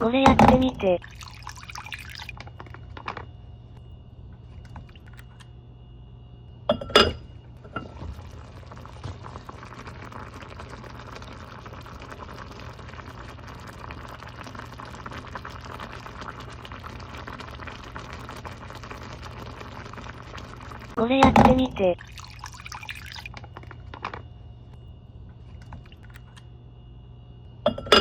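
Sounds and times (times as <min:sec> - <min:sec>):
broth bubbling: 0:00.4 - 0:02.8, 0:04.4 - 0:05.4, 0:07.6 - 0:23.8, 0:25.4 - 0:26.4.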